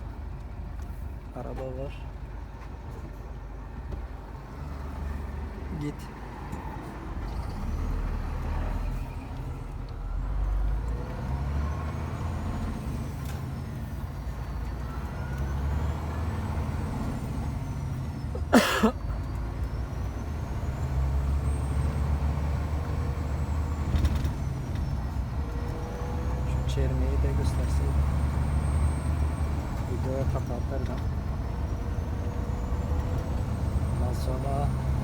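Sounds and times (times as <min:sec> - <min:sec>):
diesel truck engine running: 0:00.0 - 0:35.0.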